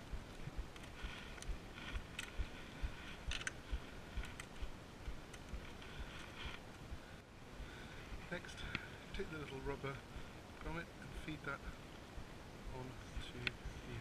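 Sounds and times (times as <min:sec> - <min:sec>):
low repeating thud: 0:00.0 - 0:06.1
wire clicking and rustling: 0:00.3 - 0:06.8.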